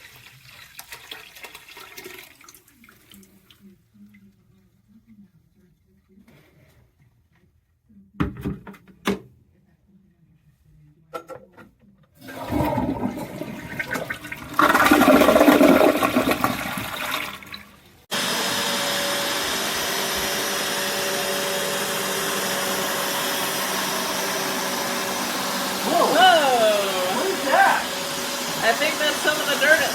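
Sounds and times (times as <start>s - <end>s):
gushing gurgling water: 12.2s - 17.9s
carpet cleaner suction motor: 18.1s - 29.9s.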